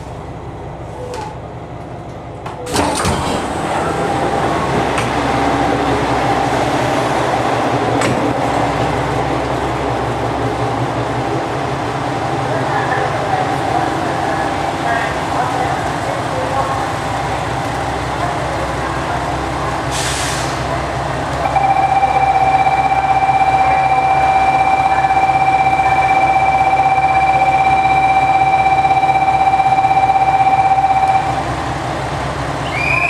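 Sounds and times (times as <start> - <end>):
train running noise: 0.0 - 33.0
steady high-pitched tone: 21.4 - 31.5.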